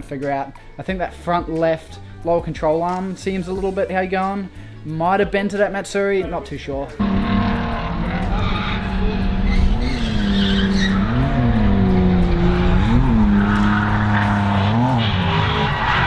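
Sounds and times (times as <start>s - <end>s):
car engine revving high: 7.0s - 16.0s
tyres screeching: 7.0s - 16.0s.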